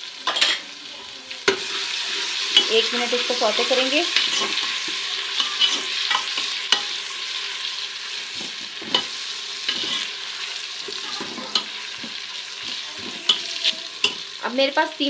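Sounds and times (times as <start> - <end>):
food sizzling in hot fat: 0.0 - 15.0.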